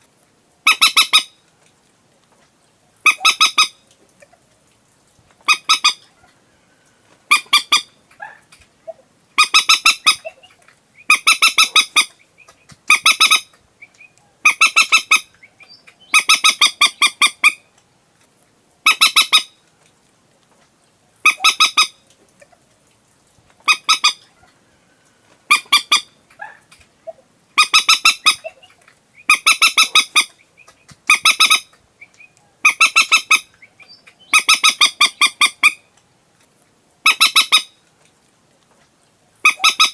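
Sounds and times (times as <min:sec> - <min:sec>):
moorhen clucking calls: 0:00.6 - 0:01.4, 0:03.0 - 0:04.5, 0:05.4 - 0:06.4, 0:07.1 - 0:17.7, 0:18.8 - 0:19.6, 0:21.2 - 0:22.7, 0:23.6 - 0:24.7, 0:25.3 - 0:35.9, 0:37.0 - 0:37.8, 0:39.4 - 0:39.9.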